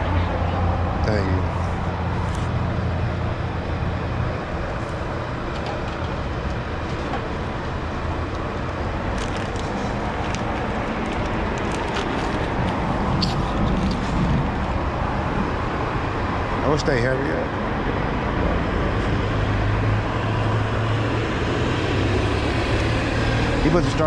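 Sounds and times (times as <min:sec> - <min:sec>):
low engine hum: 0:00.0 - 0:24.0
road traffic: 0:00.0 - 0:24.0.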